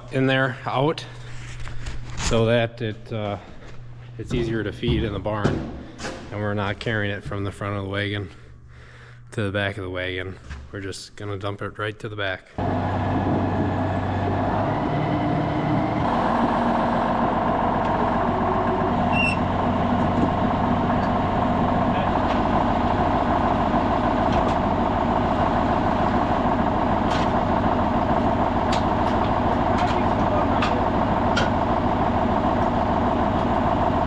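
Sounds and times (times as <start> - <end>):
tractor engine running under load: 12.6 - 34.0.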